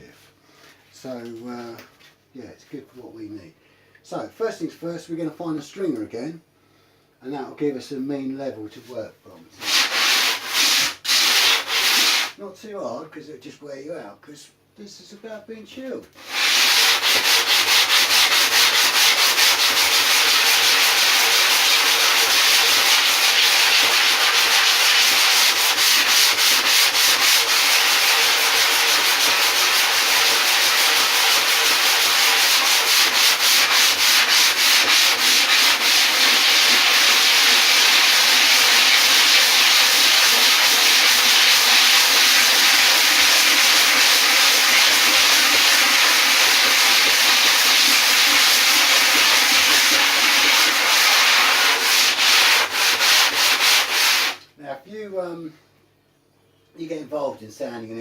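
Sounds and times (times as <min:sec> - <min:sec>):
sandpaper sanding foam: 0:09.6 - 0:12.4, 0:16.2 - 0:54.4.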